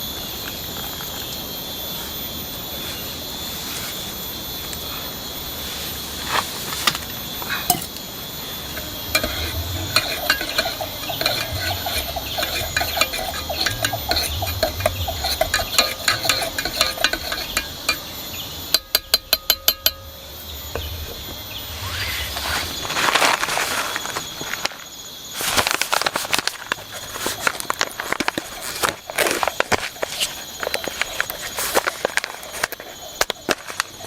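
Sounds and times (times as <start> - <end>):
spoon stirring in metal pot: 8.7 - 20.0.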